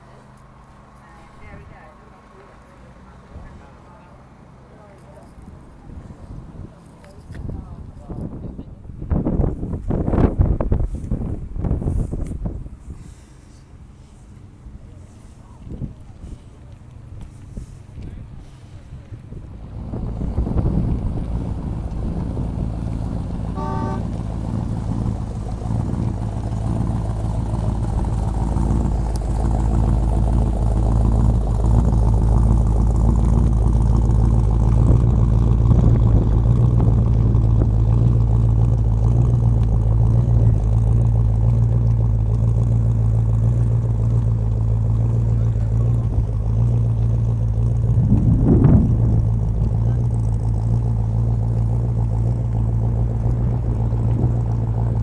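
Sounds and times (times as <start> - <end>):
car engines rumbling: 0.0 - 55.0
engine revving: 17.3 - 55.0
short horn toot: 23.4 - 24.4.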